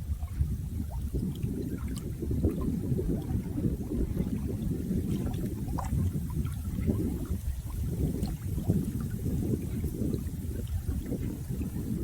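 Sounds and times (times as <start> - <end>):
water splashes and drips: 0.0 - 12.0.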